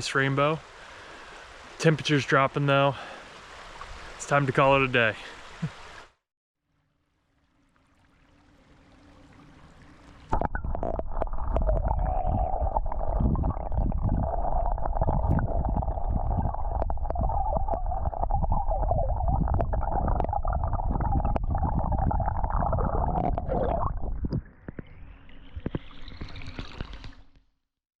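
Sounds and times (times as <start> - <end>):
faint hiss: 0.0 - 6.1
stream water gurgling and rushing: 0.0 - 6.2, 7.3 - 27.3.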